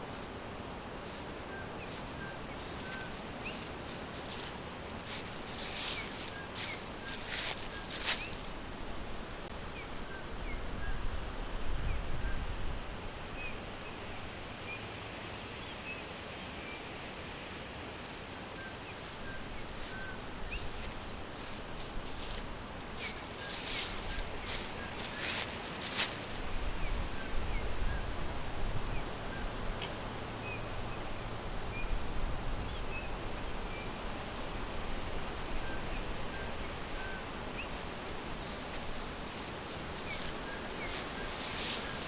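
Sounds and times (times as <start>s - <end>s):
rustling: 0.0s - 9.0s, 17.1s - 26.6s, 35.0s - 42.0s
small birds chirping: 1.0s - 8.6s, 18.0s - 26.5s, 35.1s - 42.0s.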